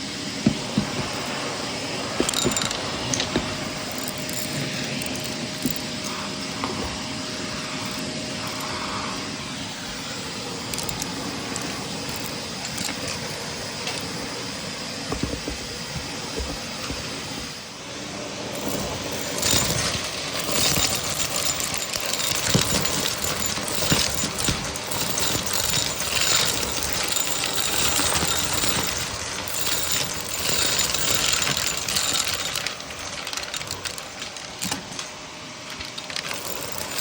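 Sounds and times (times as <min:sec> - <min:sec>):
vacuum cleaner running: 0:00.0 - 0:37.0
debris clicking and rattling: 0:02.1 - 0:07.1, 0:07.8 - 0:08.8, 0:10.4 - 0:14.4, 0:18.5 - 0:37.0.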